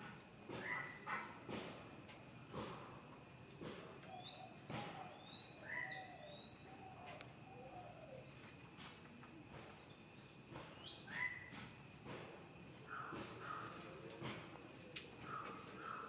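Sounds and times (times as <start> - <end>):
birds chirping faintly: 4.0 - 11.8, 12.6 - 16.0.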